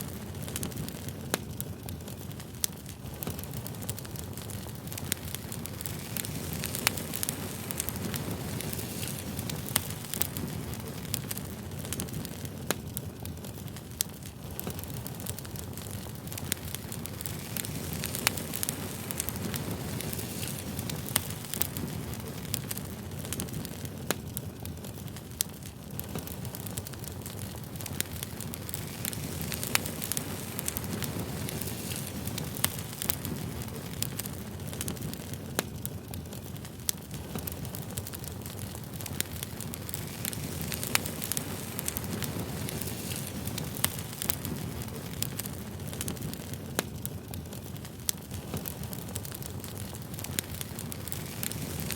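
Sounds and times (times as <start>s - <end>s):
campfire crackling: 0.0s - 51.9s
sharp snaps and pops: 0.0s - 51.9s.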